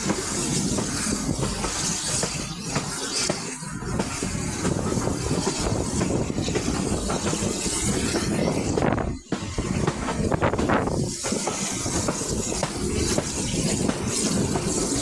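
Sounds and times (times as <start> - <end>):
train wheels rumbling on rails: 0.0 - 15.0
wind buffeting microphone: 3.8 - 15.0.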